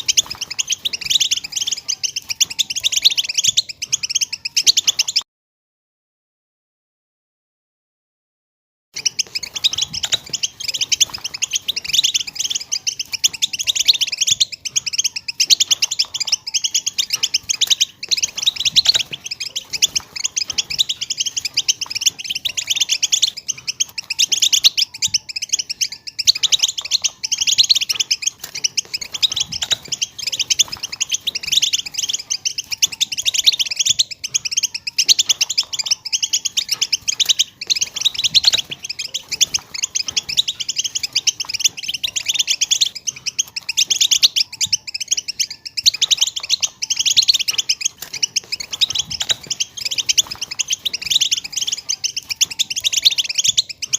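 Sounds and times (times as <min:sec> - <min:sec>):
finches twittering: 0:00.0 - 0:05.2, 0:09.0 - 0:53.9.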